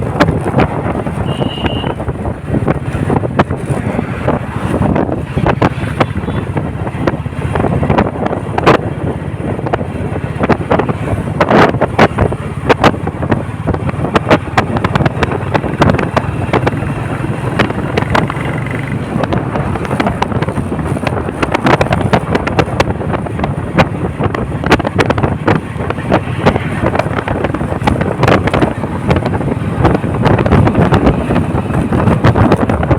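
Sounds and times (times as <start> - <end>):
motorcycle engine running: 0.0 - 32.9
wind buffeting microphone: 0.0 - 32.9.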